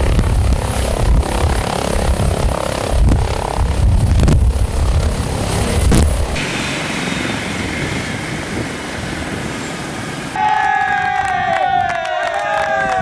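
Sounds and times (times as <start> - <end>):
helicopter rotor and turbine: 0.0 - 10.4.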